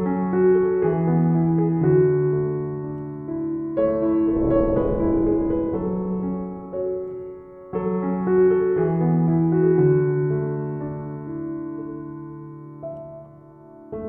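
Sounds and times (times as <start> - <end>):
soft piano chords: 4.3 - 8.0.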